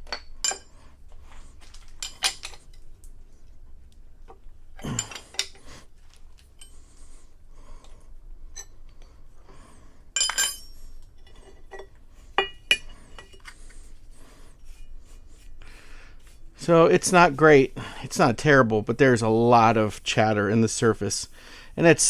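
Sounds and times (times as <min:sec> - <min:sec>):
metal tools clinking and clanking: 0:00.0 - 0:00.9, 0:01.6 - 0:02.8, 0:04.8 - 0:05.7, 0:10.2 - 0:13.9.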